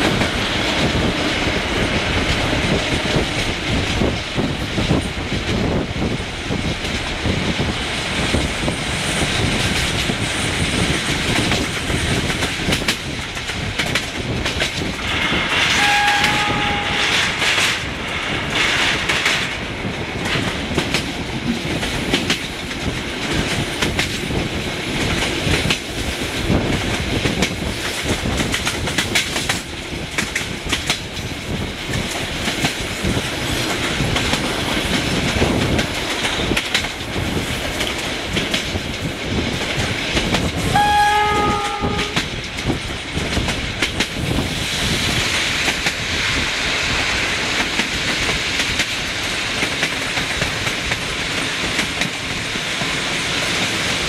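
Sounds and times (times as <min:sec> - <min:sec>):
train carriages rumbling on rails: 0:00.0 - 0:54.0
two-note locomotive horn: 0:15.7 - 0:17.5, 0:40.7 - 0:42.3.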